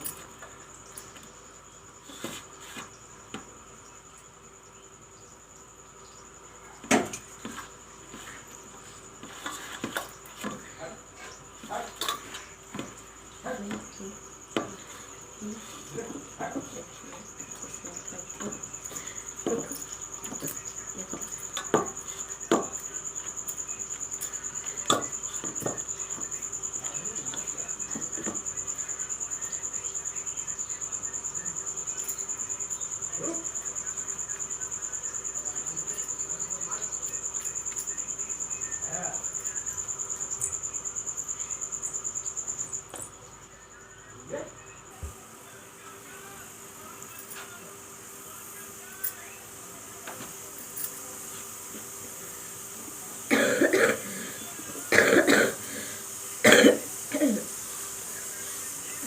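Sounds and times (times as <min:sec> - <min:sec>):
cricket trilling: 0:00.0 - 0:59.0
woman coughing: 0:53.3 - 0:54.3, 0:54.9 - 0:55.8, 0:56.4 - 0:57.5.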